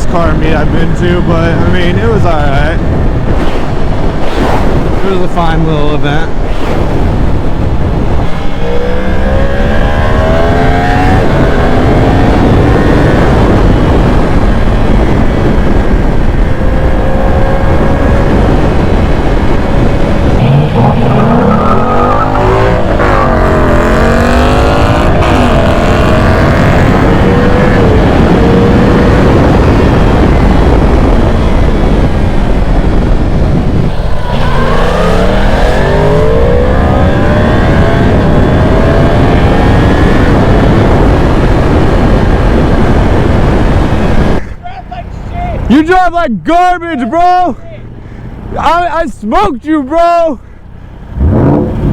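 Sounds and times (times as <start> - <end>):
motorcycle engine accelerating: 0.0 - 44.4, 50.8 - 51.9
wind rush on microphone: 0.0 - 49.1, 50.4 - 51.9.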